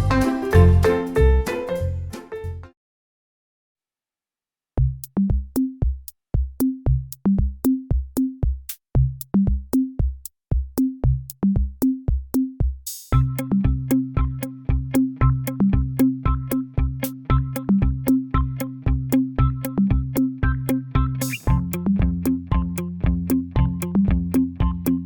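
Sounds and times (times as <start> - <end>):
drum machine beat: 0.0 - 2.4, 4.8 - 25.0
background music track: 0.0 - 2.7, 13.1 - 25.0
bass and instruments: 0.0 - 2.7, 4.8 - 25.0.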